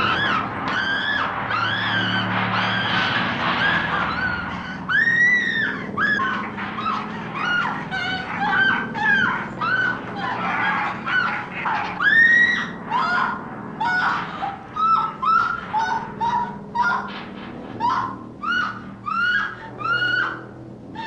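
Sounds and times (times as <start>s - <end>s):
chickens squawking: 0.0s - 21.0s.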